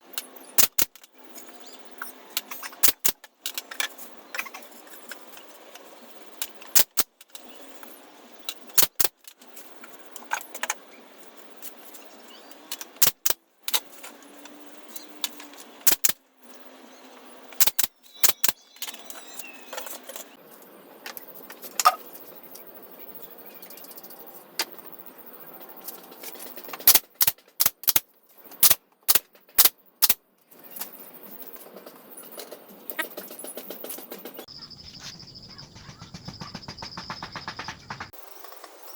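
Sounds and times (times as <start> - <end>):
knocks and clicks on wood: 35.9 - 38.2.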